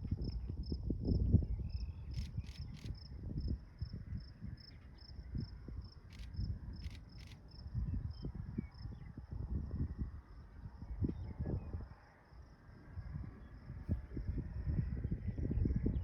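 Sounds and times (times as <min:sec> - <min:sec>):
wind rumbling on microphone: 0:00.0 - 0:16.0
insect chirping: 0:01.6 - 0:09.0.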